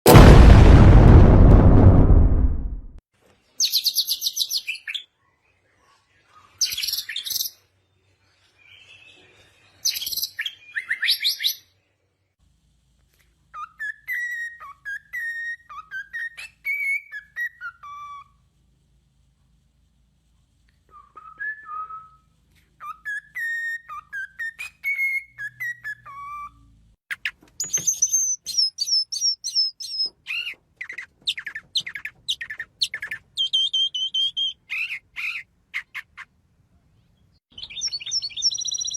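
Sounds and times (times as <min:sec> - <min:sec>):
nightingale singing: 0:27.1 - 0:36.1, 0:37.2 - 0:38.9.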